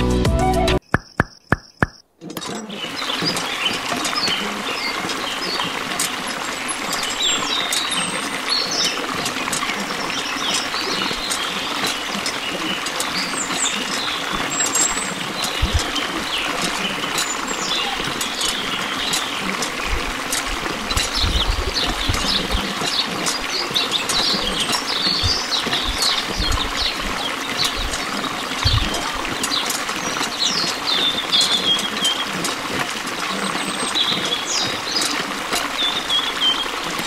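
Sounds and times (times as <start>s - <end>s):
sharp clicks: 0.8s - 2.6s
birds chirping: 0.8s - 37.0s
water pouring into basin: 2.7s - 37.0s.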